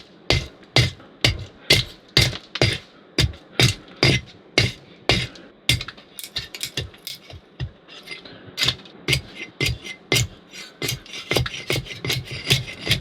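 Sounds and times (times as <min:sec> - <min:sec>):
firewood being chopped: 0:00.3 - 0:06.0.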